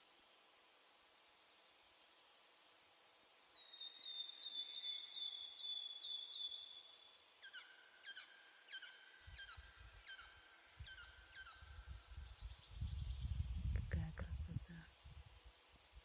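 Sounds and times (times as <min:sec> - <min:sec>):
low rumble: 0:12.8 - 0:14.8.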